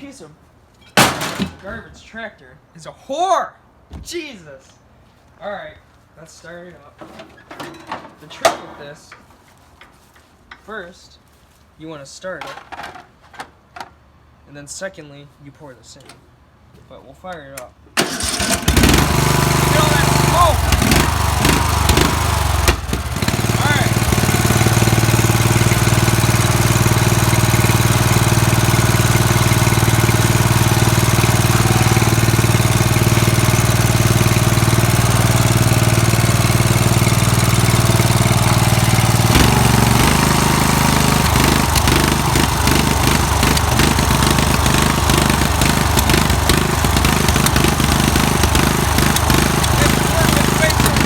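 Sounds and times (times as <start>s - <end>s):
riding lawn mower engine: 18.0s - 51.0s.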